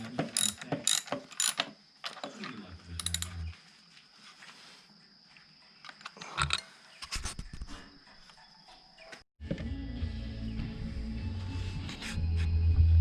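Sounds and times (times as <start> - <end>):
tools and metal parts clicking: 0.0 - 2.3, 3.0 - 3.4, 5.9 - 6.7.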